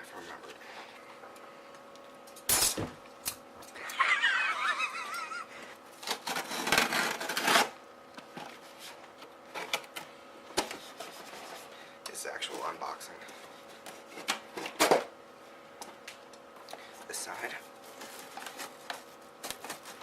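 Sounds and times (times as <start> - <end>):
gift packaging rustling: 17.0 - 20.0.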